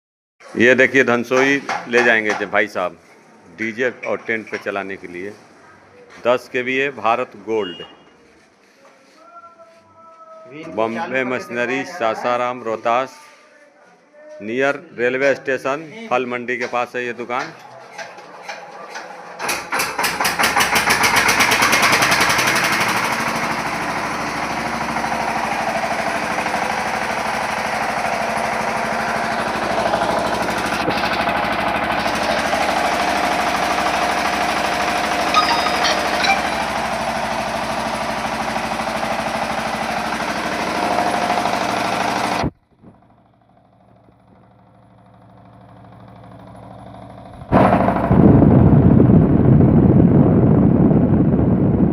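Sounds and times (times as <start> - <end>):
generator engine running: 19.2 - 49.8.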